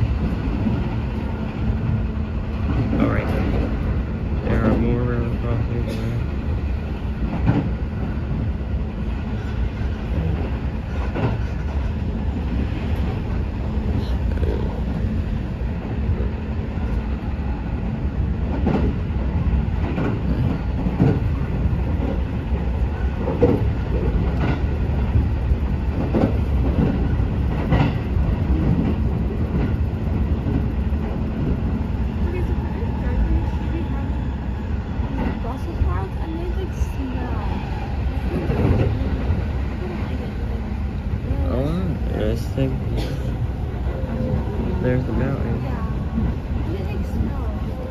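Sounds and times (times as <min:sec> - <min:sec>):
track clacks: 0:00.0 - 0:47.9
train wheels rumbling on rails: 0:00.0 - 0:47.9.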